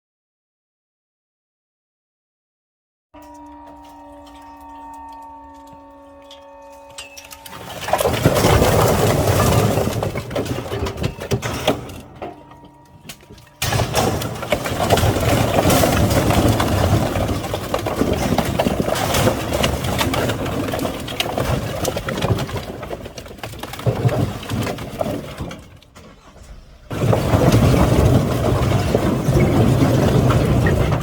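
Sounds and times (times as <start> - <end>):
truck engine humming: 3.2 - 18.9, 25.9 - 31.0
knocking and clattering: 7.0 - 26.0, 26.9 - 31.0.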